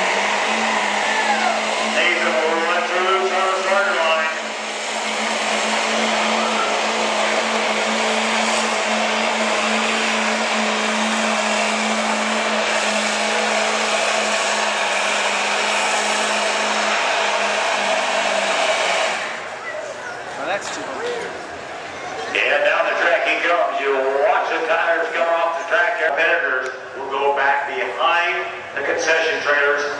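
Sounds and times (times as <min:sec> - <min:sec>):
pickup truck engine at full throttle: 0:00.0 - 0:19.5.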